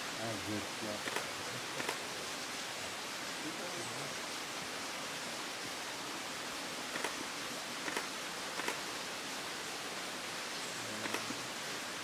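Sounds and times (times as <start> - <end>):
steady hiss: 0.0 - 12.0
faint clicks: 1.0 - 2.0, 7.8 - 8.8, 11.0 - 11.4.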